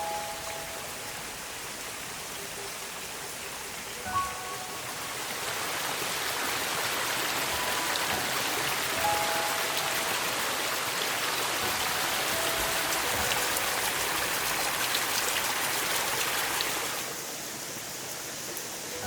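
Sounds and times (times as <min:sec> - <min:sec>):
water hissing and pattering: 0:04.8 - 0:19.0.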